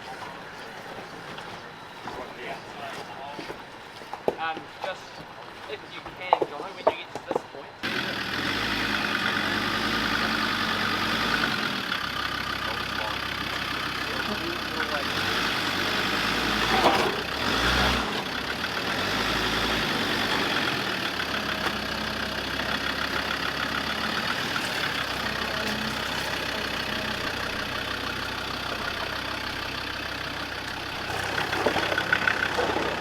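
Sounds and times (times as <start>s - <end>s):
off-road vehicle engine at low revs: 7.8s - 33.0s.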